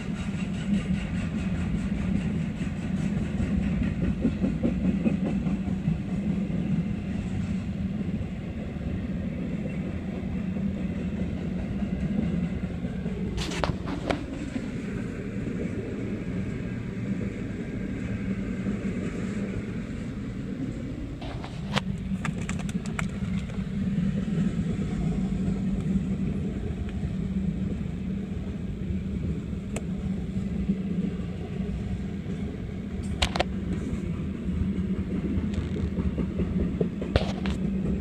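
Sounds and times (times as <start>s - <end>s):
wheels clickety-clack: 0.0s - 6.8s, 9.6s - 14.7s, 21.2s - 26.0s, 33.0s - 38.0s
freight train wheels rumbling: 0.0s - 38.0s.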